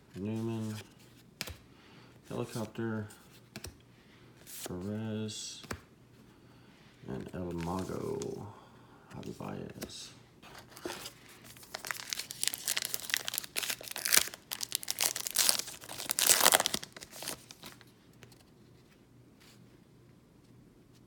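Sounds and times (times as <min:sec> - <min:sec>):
wrapper tearing and crinkling: 0:10.8 - 0:17.8.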